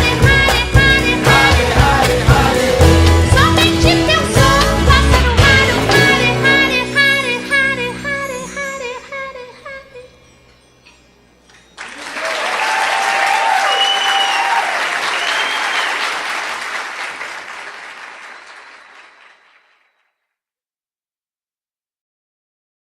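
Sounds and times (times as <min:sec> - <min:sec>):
audience applause: 0:11.8 - 0:19.9
whistles: 0:13.6 - 0:16.4.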